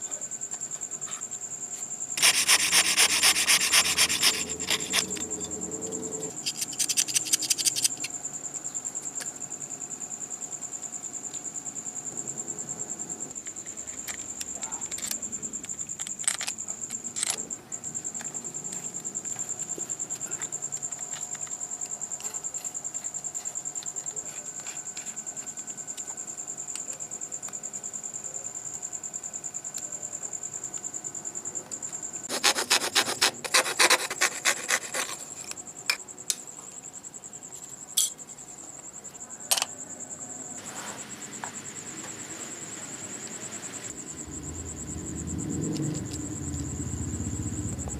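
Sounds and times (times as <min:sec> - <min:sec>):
insect trilling: 0:02.1 - 0:08.2, 0:43.2 - 0:47.9
rapid rasping strokes: 0:02.2 - 0:05.5, 0:06.2 - 0:08.1, 0:32.3 - 0:35.3.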